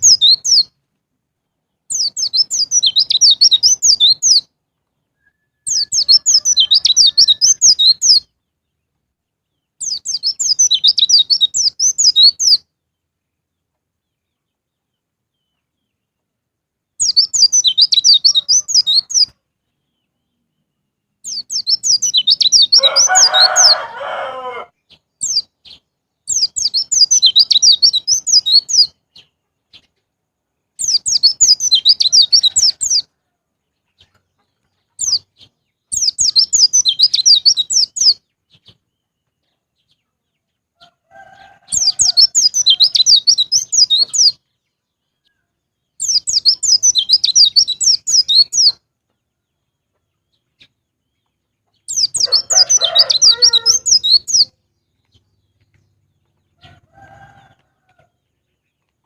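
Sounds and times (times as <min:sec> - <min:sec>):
birds twittering: 0:00.0 - 0:00.8, 0:01.4 - 0:16.2, 0:16.9 - 0:30.0, 0:30.6 - 0:59.0
rooster crowing: 0:05.3 - 0:07.8, 0:18.2 - 0:19.3, 0:22.7 - 0:24.8, 0:32.0 - 0:33.4, 0:40.8 - 0:43.1, 0:52.1 - 0:54.2, 0:56.6 - 0:58.2.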